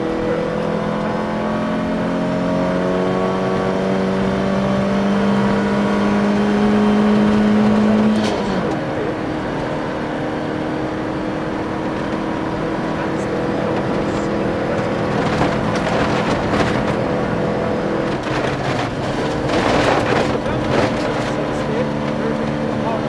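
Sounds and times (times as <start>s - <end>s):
car engine from inside cabin: 0.0s - 23.0s
gravel road noise: 0.0s - 23.0s.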